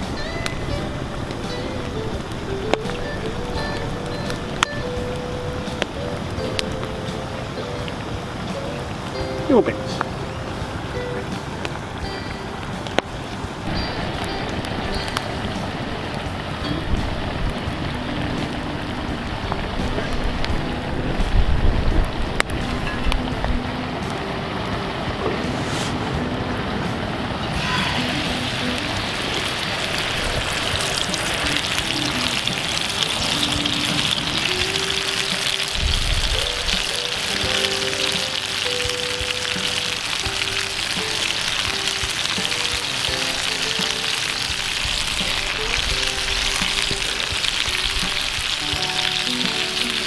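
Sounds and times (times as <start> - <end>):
food sizzling in hot oil: 0.0 - 10.3, 10.9 - 23.4, 27.5 - 50.0
background music with simple melody: 0.0 - 50.0.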